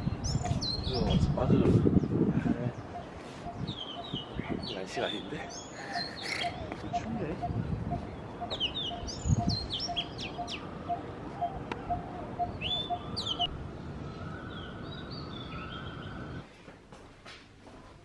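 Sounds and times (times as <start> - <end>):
outdoor background noise: 0.0 - 18.0
birds chirping and whistling: 2.8 - 13.5.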